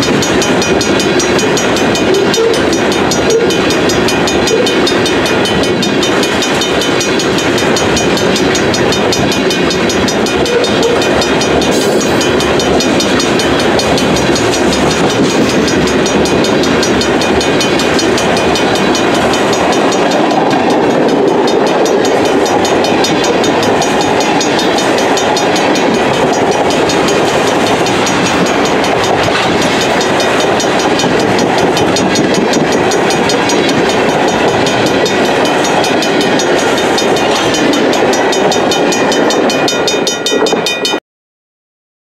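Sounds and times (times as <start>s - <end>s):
steel wheels rumbling on rails: 0.0s - 41.0s.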